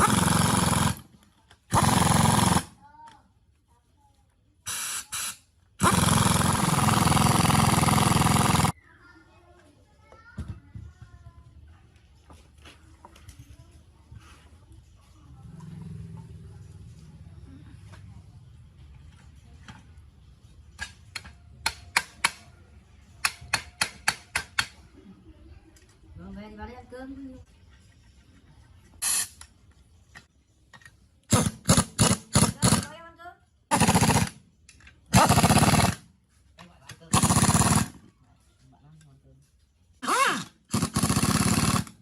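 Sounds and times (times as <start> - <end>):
power tool rattling: 0.0 - 2.7, 5.8 - 8.7, 33.7 - 34.4, 35.1 - 36.0, 37.1 - 38.0, 40.0 - 42.0.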